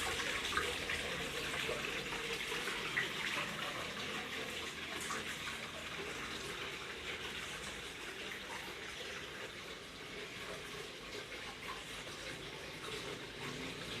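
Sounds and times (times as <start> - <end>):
waterfall splashing into pond: 0.0 - 14.0.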